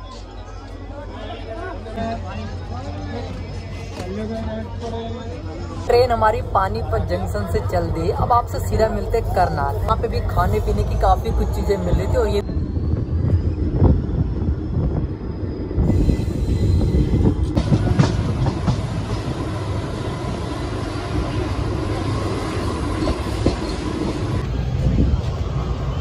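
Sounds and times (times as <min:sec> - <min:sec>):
train wheels rumbling on rails: 0:00.0 - 0:26.0
faint high wheel squeal: 0:10.4 - 0:17.6, 0:22.6 - 0:24.6.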